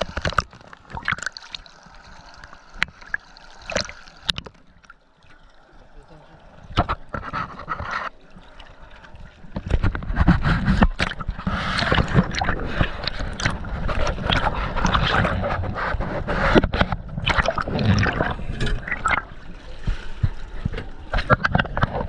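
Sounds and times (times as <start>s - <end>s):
water splashing and gurgling: 0.0s - 22.0s
knocks and scrapes: 6.8s - 8.2s, 9.5s - 22.0s.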